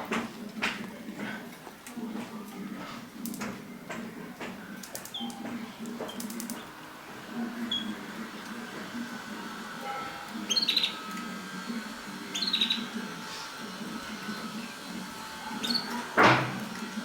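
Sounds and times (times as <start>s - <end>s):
canaries chirping: 3.8s - 17.0s.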